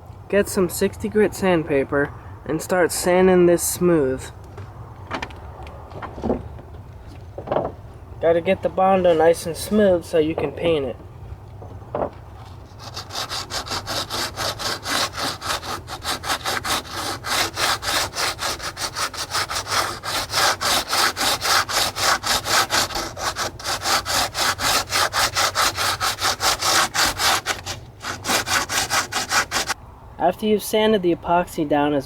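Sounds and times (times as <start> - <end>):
sandpaper scraping: 12.4 - 29.8.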